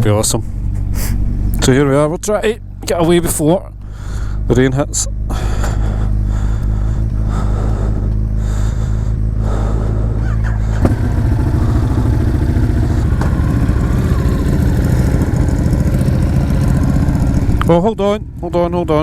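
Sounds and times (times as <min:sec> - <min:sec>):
motorcycle engines idling: 0:00.0 - 0:19.0.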